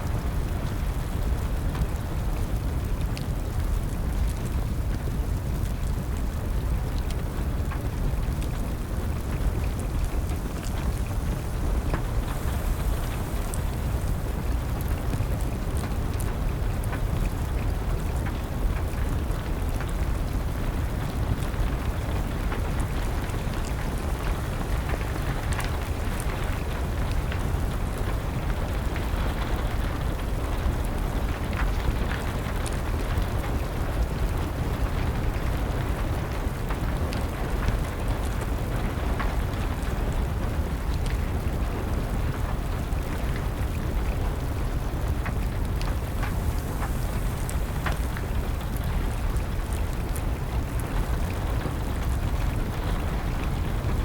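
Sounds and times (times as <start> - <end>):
steady rain falling: 0.0 - 54.0
wood fire crackling: 0.1 - 54.0.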